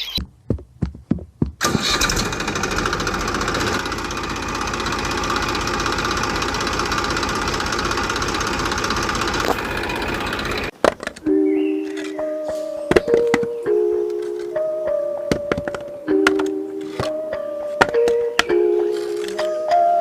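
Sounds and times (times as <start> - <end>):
small motor rattling: 1.6 - 10.7.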